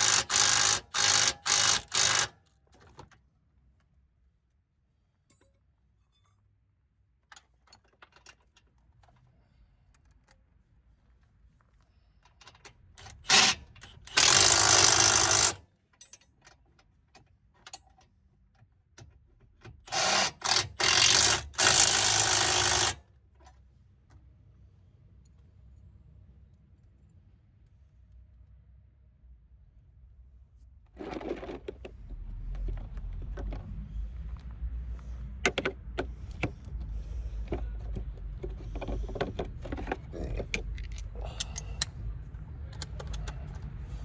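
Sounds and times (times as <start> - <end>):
impact wrench bursts: 0.0 - 2.4, 13.0 - 15.6, 19.9 - 23.0
tools and parts clicking: 0.0 - 3.3, 7.2 - 9.3, 12.2 - 23.6, 37.4 - 43.8.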